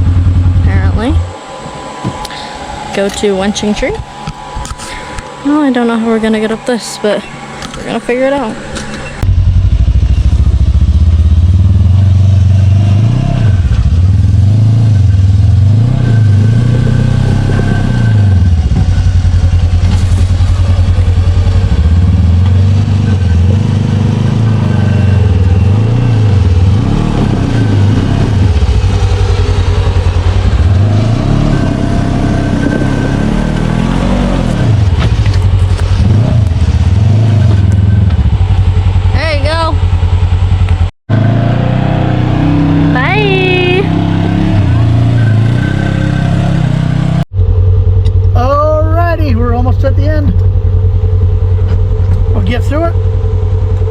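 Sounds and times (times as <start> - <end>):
engine revving: 0.0 - 53.9.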